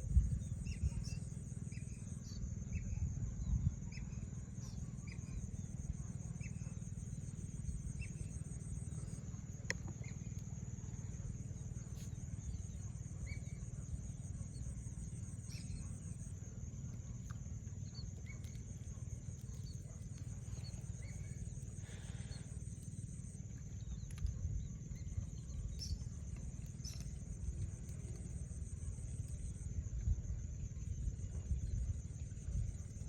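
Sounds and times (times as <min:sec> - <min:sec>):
wind rumble on microphone: 0:00.0 - 0:06.9, 0:23.8 - 0:33.0
high insect drone: 0:00.0 - 0:33.0
faint bird chirps: 0:00.1 - 0:16.4, 0:17.0 - 0:28.2.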